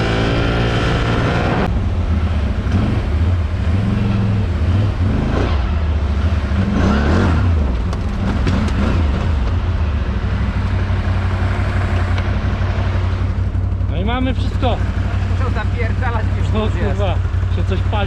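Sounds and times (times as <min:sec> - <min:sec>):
quad engine revving: 0:00.0 - 0:09.5.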